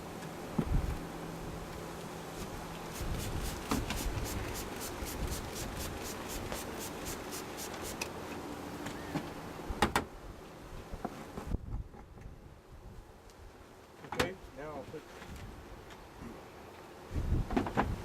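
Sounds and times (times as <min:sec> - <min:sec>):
wood rubbing rhythmically: 0:02.9 - 0:08.0.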